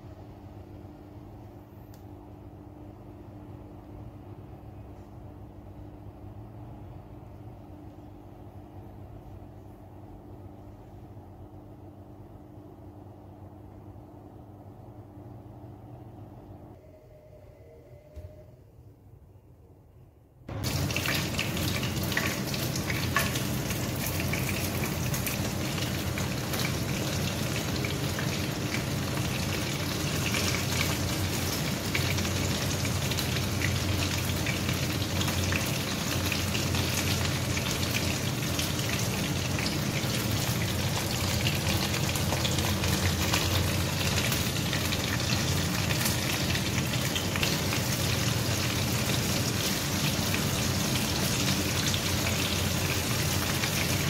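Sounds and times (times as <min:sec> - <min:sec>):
chicken sizzling in hot oil: 0:20.5 - 0:54.0.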